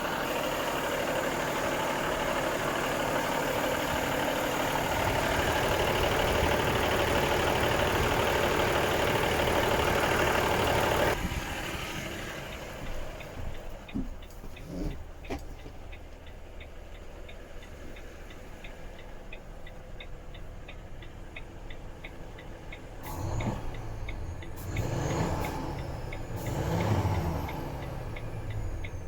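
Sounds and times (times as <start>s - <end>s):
diesel engine idling and revving: 0.0s - 29.0s
steady ticking: 2.3s - 23.1s.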